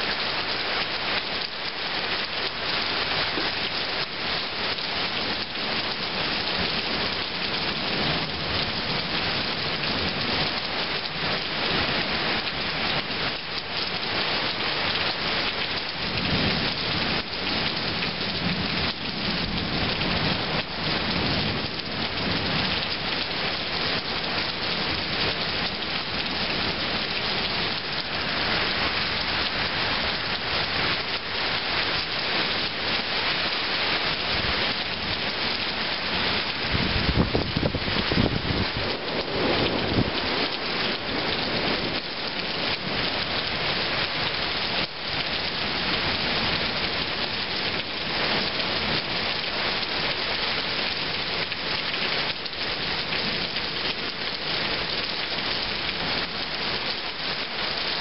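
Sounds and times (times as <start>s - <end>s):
heavy rain pouring: 0.0s - 58.0s
thunder rumbling: 36.2s - 42.9s.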